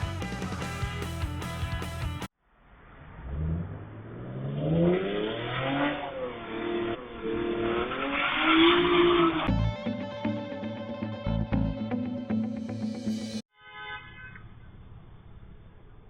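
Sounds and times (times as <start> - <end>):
music: 0.0 - 2.3, 9.5 - 13.4
car engine revving: 3.0 - 10.0.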